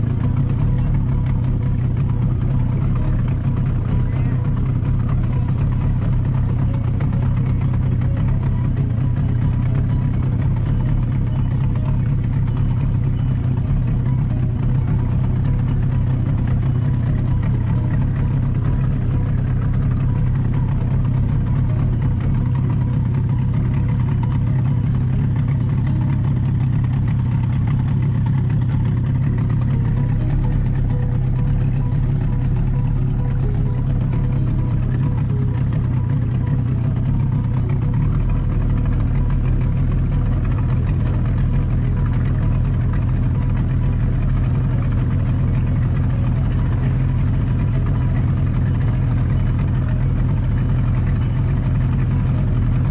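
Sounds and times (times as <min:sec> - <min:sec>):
boat engine droning: 0:00.0 - 0:52.9.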